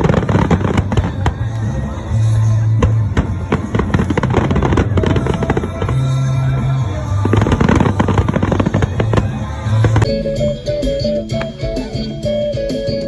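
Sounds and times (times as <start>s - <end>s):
fireworks crackling and popping: 0.0s - 10.1s
music with held bass line: 0.0s - 13.0s.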